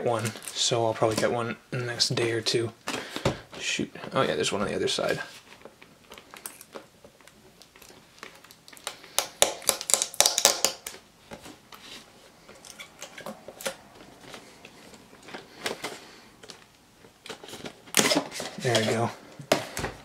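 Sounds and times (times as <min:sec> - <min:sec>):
packaging clicks scrapes and rustles: 0:11.4 - 0:19.1.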